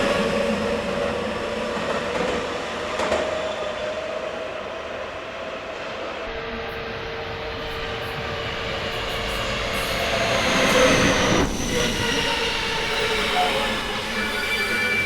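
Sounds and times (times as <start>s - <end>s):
electric train braking: 7.2s - 15.0s.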